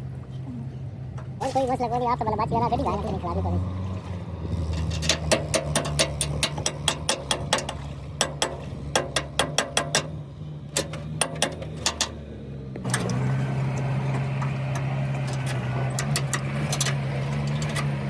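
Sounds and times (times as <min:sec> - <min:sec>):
engine idling: 0:00.0 - 0:18.0
sharp metallic clicks: 0:04.7 - 0:12.2, 0:12.8 - 0:18.0.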